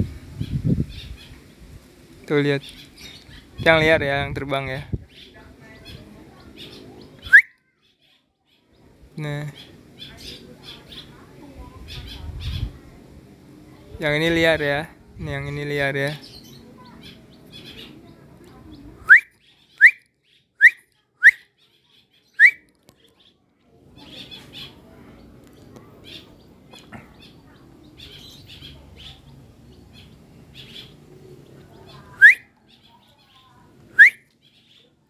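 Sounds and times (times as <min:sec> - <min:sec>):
bird calling in rising notes: 0:32.2 - 0:32.5, 0:33.9 - 0:34.3.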